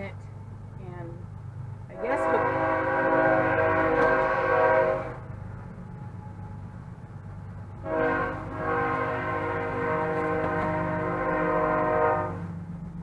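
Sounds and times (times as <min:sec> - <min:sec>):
steady low hum: 0:00.0 - 0:13.0
train horn blasts: 0:01.9 - 0:05.4, 0:07.8 - 0:12.6.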